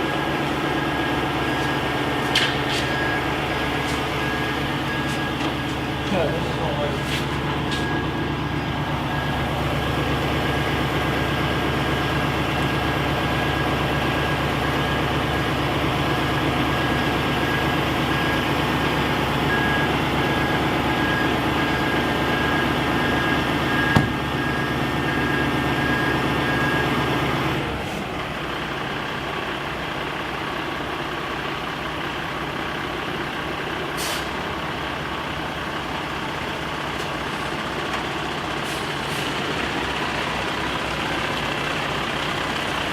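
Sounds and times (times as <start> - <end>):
back-up alarm beeping: 0.0 - 11.6, 19.4 - 27.0
diesel truck engine running: 0.0 - 42.9
sharp knock: 23.9 - 24.2.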